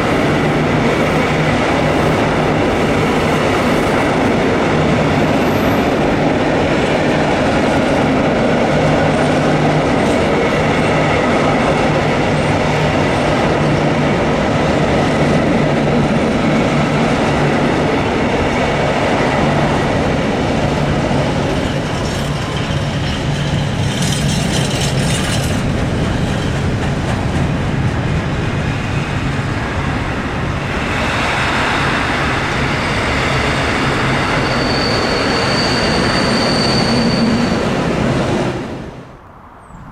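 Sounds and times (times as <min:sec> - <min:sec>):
train wheels rumbling on track: 0:00.0 - 0:39.9
high-pitched wheel squeal: 0:34.0 - 0:37.9.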